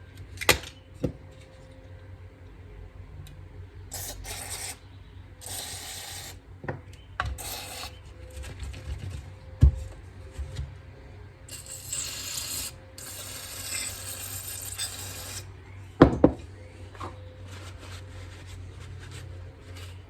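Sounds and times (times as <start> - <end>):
wire scraping through metal jet: 3.9 - 4.8, 5.4 - 6.4, 7.4 - 8.0, 11.5 - 15.5, 19.2 - 20.0.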